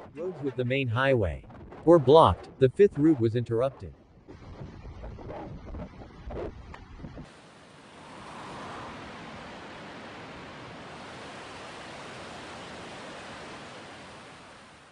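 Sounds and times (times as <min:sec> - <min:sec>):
rushing water: 0:07.2 - 0:14.9.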